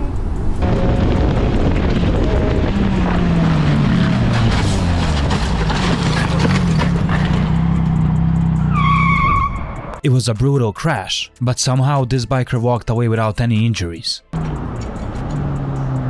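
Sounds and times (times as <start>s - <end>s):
heavy wind noise: 0.0s - 4.9s
motorcycle engine running: 0.2s - 8.7s.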